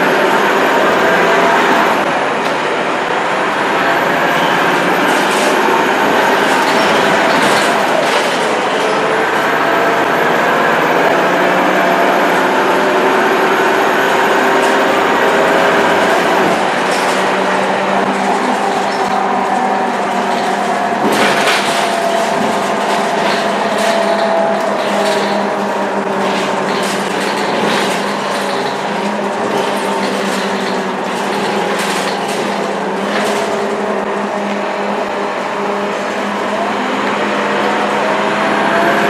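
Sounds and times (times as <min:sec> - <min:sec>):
bus diesel engine running: 0:00.0 - 0:39.0.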